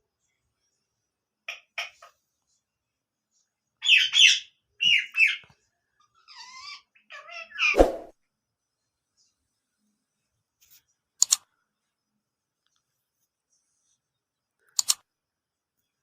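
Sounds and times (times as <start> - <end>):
parrot squawking: 6.2 - 7.8.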